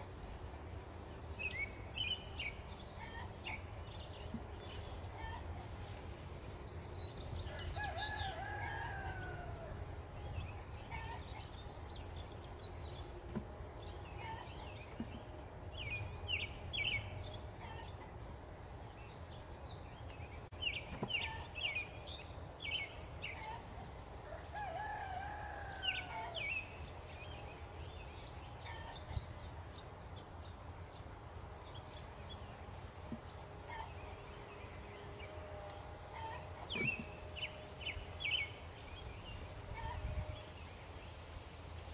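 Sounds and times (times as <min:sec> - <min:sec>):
small birds chirping: 0:00.0 - 0:08.9, 0:10.0 - 0:24.4, 0:25.1 - 0:41.2
rooster crowing: 0:07.5 - 0:09.8, 0:24.2 - 0:26.4.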